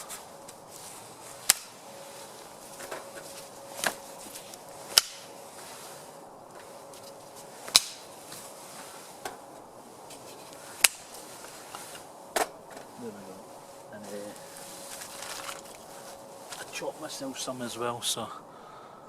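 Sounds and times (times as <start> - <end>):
dry sticks snapping: 1.4 - 1.8, 3.8 - 5.4, 6.5 - 8.1, 10.5 - 11.3, 14.9 - 16.7.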